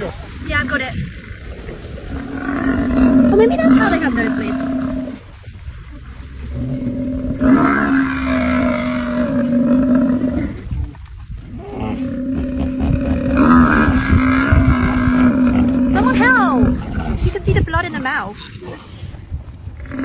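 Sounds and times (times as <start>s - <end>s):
buffalo bellowing: 6.4s - 10.6s, 11.6s - 17.1s.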